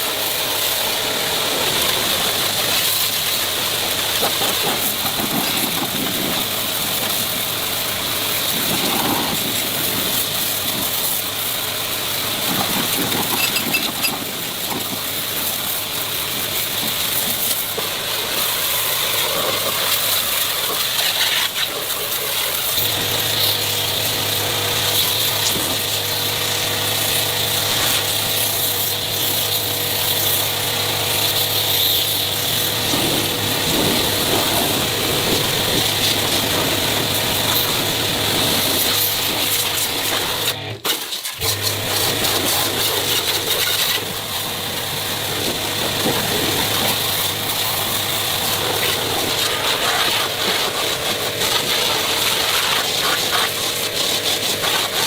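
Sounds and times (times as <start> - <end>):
workshop noise: 12.4 - 53.9.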